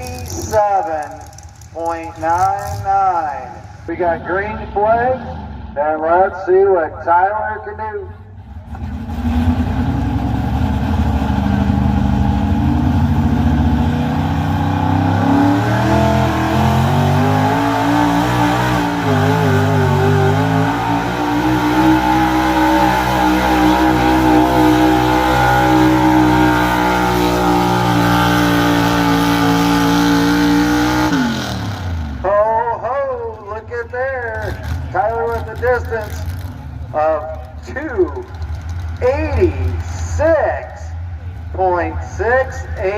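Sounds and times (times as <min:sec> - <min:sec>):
truck engine at high revs: 0:00.0 - 0:06.1, 0:08.2 - 0:40.6.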